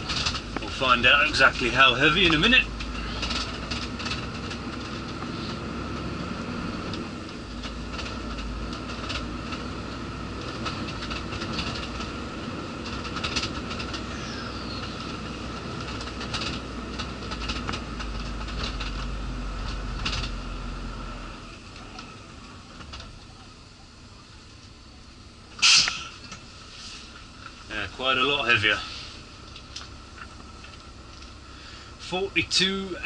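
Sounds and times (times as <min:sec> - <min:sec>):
clicks and rattles from cab: 0:00.0 - 0:06.1, 0:06.8 - 0:20.4
lorry engine running: 0:00.0 - 0:33.0.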